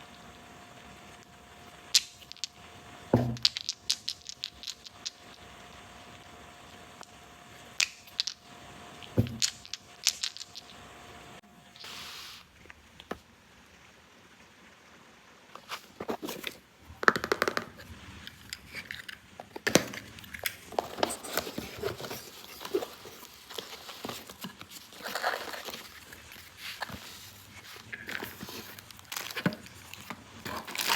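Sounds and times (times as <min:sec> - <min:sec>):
plastic toy pieces clicking: 0:03.4 - 0:05.4
plastic packaging crinkling: 0:18.3 - 0:30.9.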